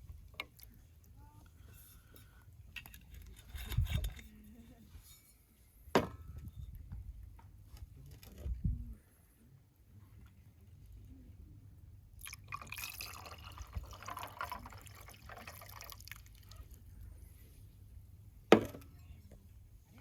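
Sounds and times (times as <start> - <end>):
liquid pouring and dripping: 12.2 - 16.6.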